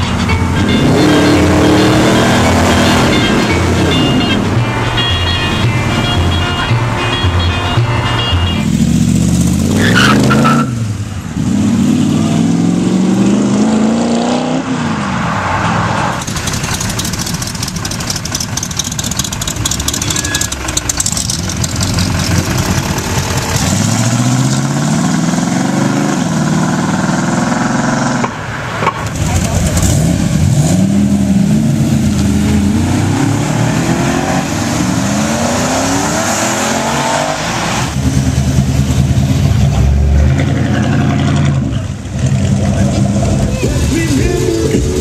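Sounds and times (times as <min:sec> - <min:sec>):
car engines accelerating: 0:00.0 - 0:45.0
car engine running rough: 0:16.1 - 0:28.4, 0:37.7 - 0:45.0.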